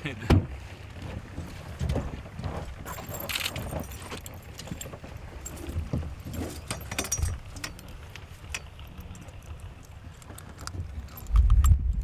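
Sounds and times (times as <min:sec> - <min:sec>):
gear clicking and clinking: 0:01.8 - 0:11.8
steady low rumble: 0:07.2 - 0:12.0.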